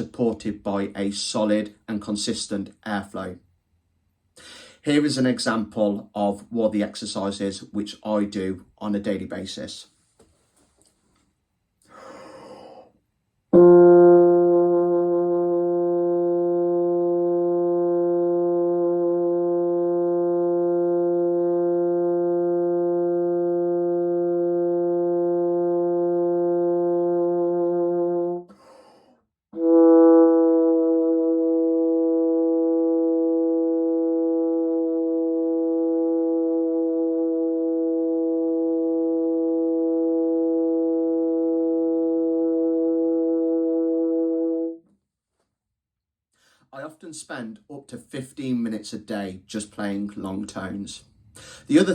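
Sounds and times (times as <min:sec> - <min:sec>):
breath intake: 0:04.4 - 0:04.8, 0:11.8 - 0:13.0, 0:51.3 - 0:51.7
brass instrument long notes: 0:13.5 - 0:28.6, 0:29.6 - 0:44.8.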